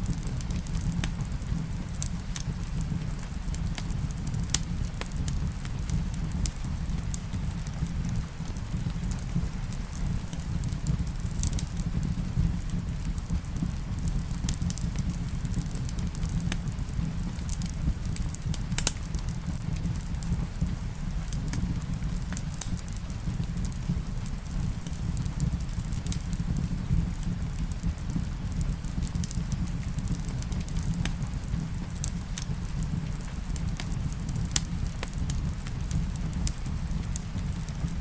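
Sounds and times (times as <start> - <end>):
rain pattering: 0.0 - 38.0
wood fire crackling and popping: 0.0 - 38.0.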